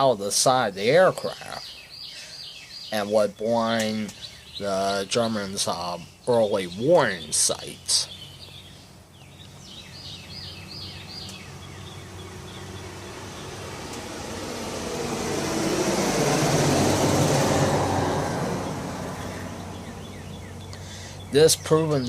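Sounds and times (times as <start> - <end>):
bird chirping: 0.0 - 16.0, 16.9 - 22.0
vehicle passing by: 8.5 - 22.0.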